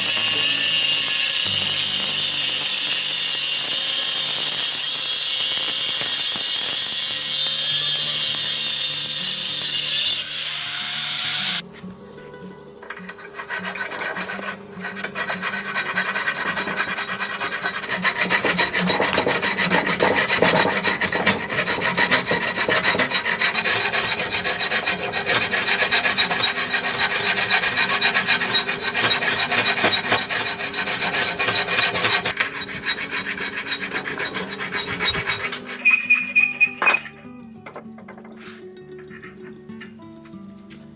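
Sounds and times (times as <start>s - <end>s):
rasping on wood: 13.2s - 36.4s.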